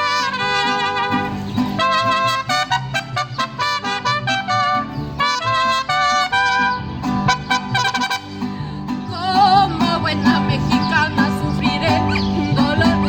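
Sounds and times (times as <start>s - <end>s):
mariachi band playing: 0.0s - 13.0s
strummed guitars: 0.0s - 13.0s
person singing with vibrato: 9.0s - 13.0s.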